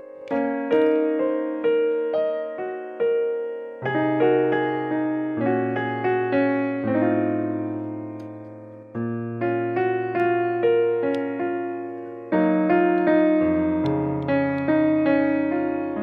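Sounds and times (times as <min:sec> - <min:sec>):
keyboard music: 0:00.0 - 0:16.0.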